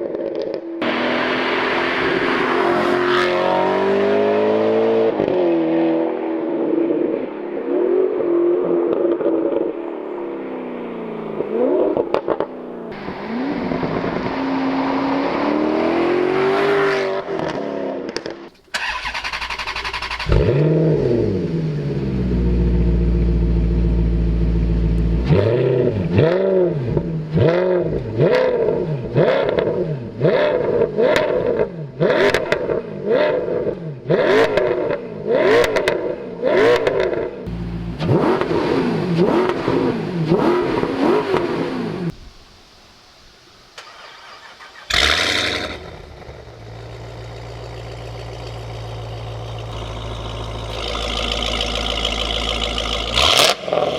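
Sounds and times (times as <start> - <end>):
car engine revving: 0.8 - 6.2, 9.1 - 42.1, 43.9 - 53.9.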